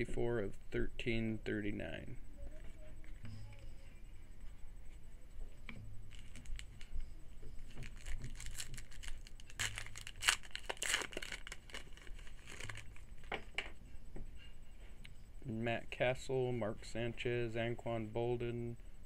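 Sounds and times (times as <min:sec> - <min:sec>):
foil wrapper tearing and crinkling: 0:06.1 - 0:06.9, 0:07.8 - 0:13.1.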